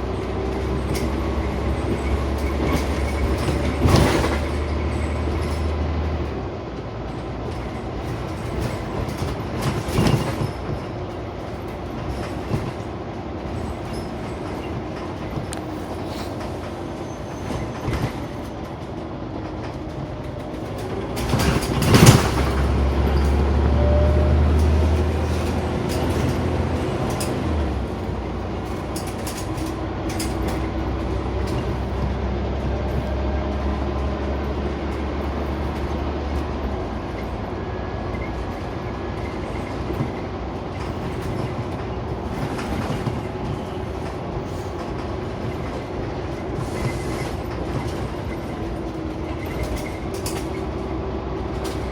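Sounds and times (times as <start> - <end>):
bus diesel engine droning: 0.0 - 51.9
road noise: 0.0 - 51.9
rattles: 19.6 - 23.6.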